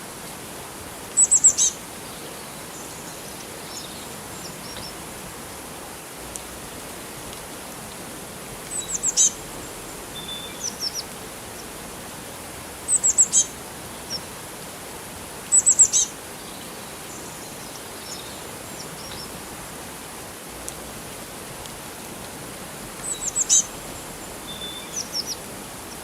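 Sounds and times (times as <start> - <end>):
flowing water hiss: 0.0 - 26.0
small birds chirping: 1.1 - 5.0, 8.7 - 11.8, 12.9 - 14.3, 15.5 - 19.4, 23.0 - 26.0.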